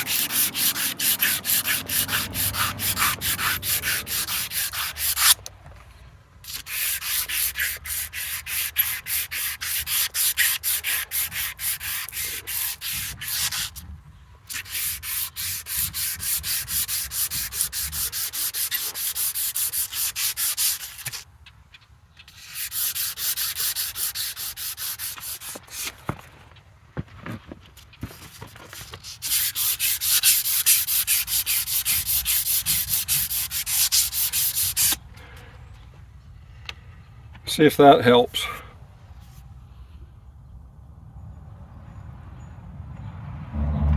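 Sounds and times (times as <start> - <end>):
emery cloth scraping metal shaft: 0.0 - 5.4.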